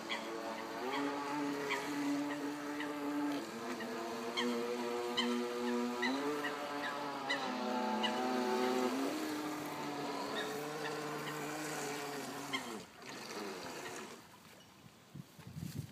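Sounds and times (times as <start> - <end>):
electric motor whine: 0.0 - 14.3.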